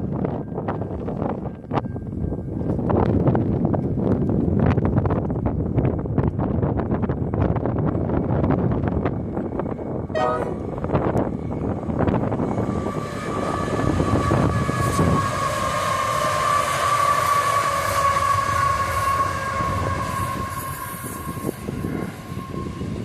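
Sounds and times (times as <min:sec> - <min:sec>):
freight train rumbling past: 0:00.0 - 0:23.0
long steady high tone: 0:10.2 - 0:10.8.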